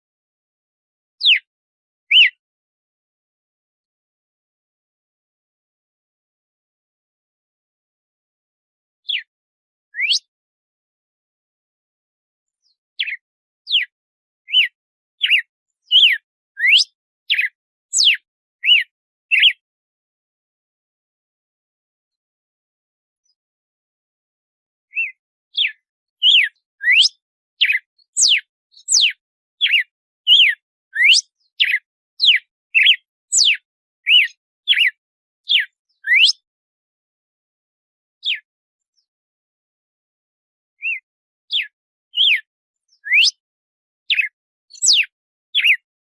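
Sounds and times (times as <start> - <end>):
bird singing whistled notes: 1.2 - 1.5, 2.1 - 2.4, 9.0 - 9.3, 10.0 - 10.3, 12.5 - 19.6, 24.9 - 36.5, 38.2 - 39.1, 40.8 - 43.4, 44.1 - 45.9
bird whistling clear notes: 10.0 - 10.2, 26.3 - 28.4, 29.7 - 31.8, 36.1 - 36.3, 43.0 - 43.4.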